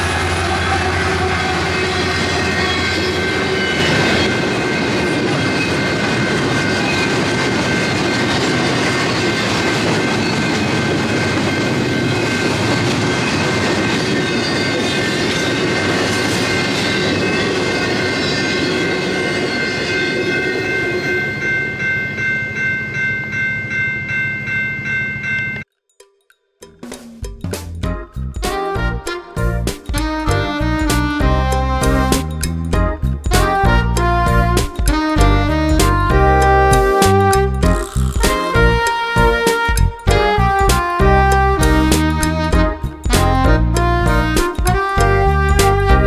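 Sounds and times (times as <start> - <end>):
freight train rumbling past: 0.0 - 25.6
high ringing: 0.0 - 25.7.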